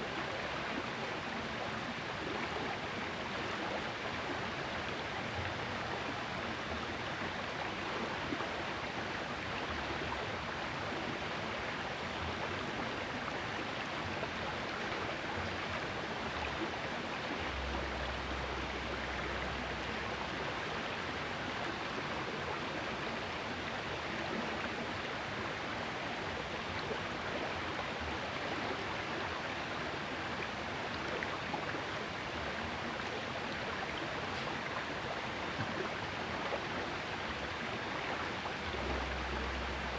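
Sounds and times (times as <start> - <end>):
low rumble: 17.5 - 20.7, 38.6 - 39.9
river water rushing: 37.0 - 39.9.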